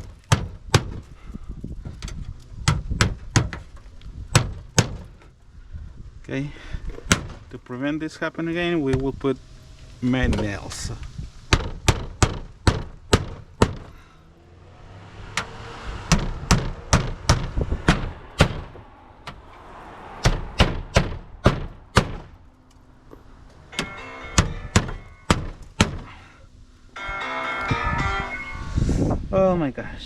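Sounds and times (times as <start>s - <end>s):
phone ringing: 23.7s - 25.3s, 27.0s - 28.6s.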